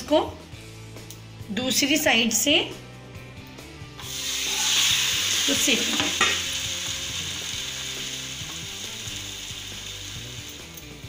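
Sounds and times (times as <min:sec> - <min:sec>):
pancake sizzling in hot oil: 0:04.0 - 0:10.7.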